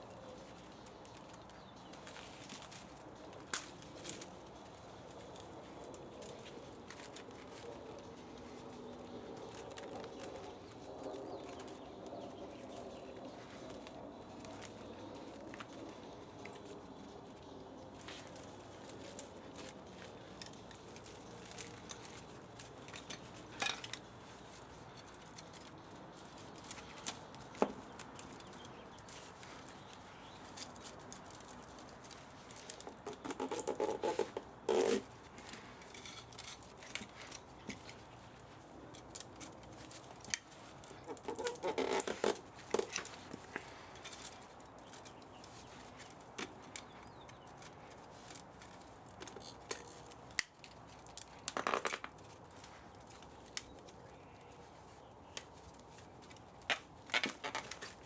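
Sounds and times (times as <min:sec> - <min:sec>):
rapid clicking and scraping: 0:00.4 - 0:53.7
hand tools clicking and tapping: 0:17.8 - 0:54.6.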